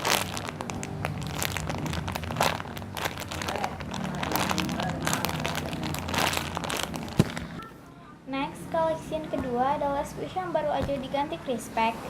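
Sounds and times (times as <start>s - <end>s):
foam toy crinkling and rustling: 0.0s - 7.6s.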